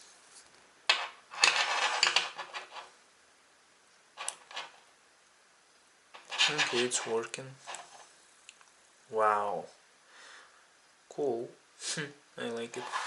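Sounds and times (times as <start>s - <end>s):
small hard objects clattering: 6.2s - 8.1s.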